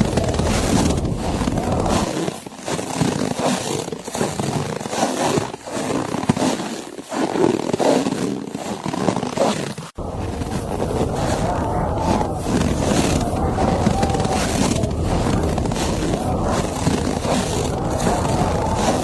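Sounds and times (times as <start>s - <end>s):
wind blowing: 0.0s - 2.1s, 10.0s - 19.0s.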